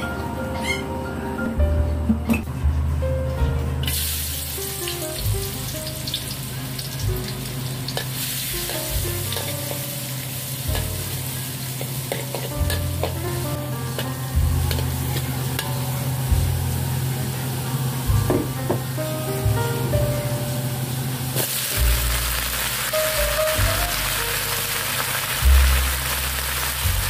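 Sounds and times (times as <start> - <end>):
soft background music: 0.0 - 27.0
food sizzling in wok: 3.8 - 27.0
metal spatula scraping wok: 7.9 - 17.1.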